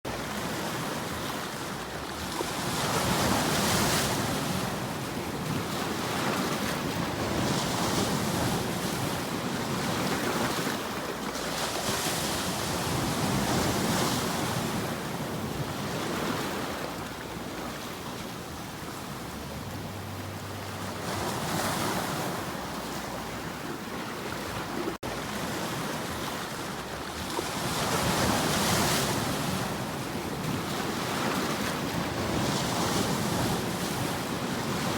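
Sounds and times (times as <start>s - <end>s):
waves breaking on shore: 0.1s - 34.9s.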